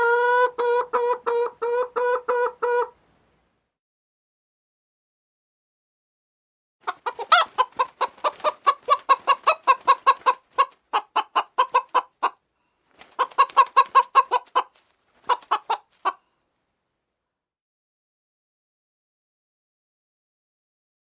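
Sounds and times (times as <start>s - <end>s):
chicken clucking: 0.0s - 3.0s, 6.8s - 12.4s, 13.0s - 16.3s.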